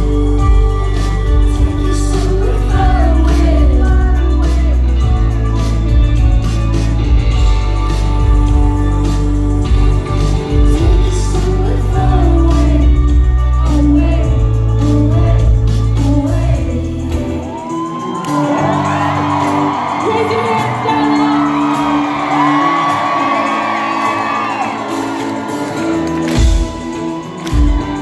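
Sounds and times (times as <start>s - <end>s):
heavy bass: 0.0s - 17.7s
live pop band: 0.0s - 28.0s
person singing: 0.0s - 28.0s.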